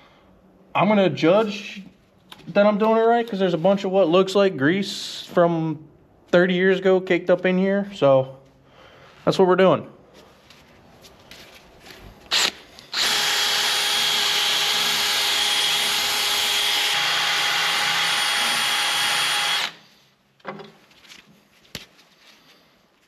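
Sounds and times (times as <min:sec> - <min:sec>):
drill with wire wheel scrubbing metal: 0:12.3 - 0:19.8.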